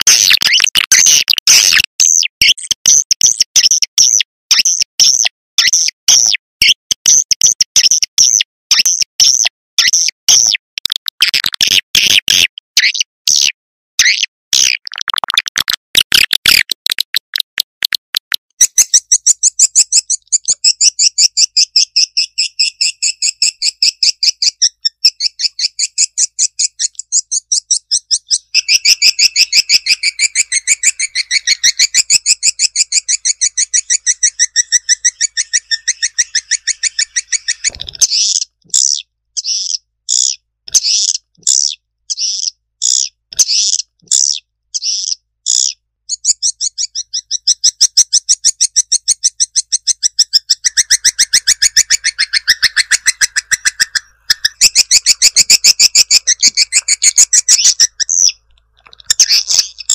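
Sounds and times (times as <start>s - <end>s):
high bird chirps and twitters: 0.0s - 59.9s
lower chirping: 18.6s - 59.9s.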